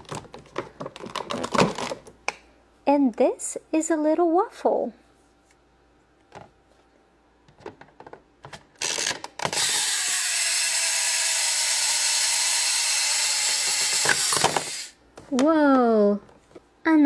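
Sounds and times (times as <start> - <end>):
toy toaster ratcheting buzz: 8.8 - 15.0.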